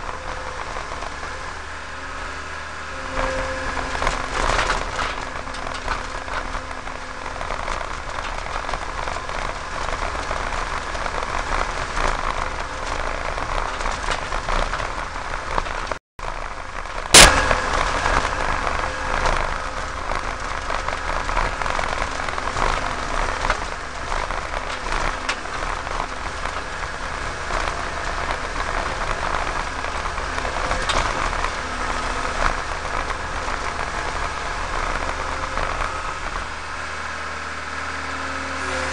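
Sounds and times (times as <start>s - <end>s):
farm machinery engine running: 0.0s - 38.9s.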